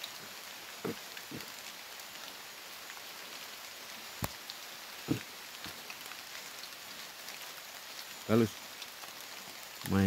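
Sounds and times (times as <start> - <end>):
heavy raindrops thudding: 0.0 - 1.7, 4.2 - 7.0
steady rain falling: 0.0 - 10.0.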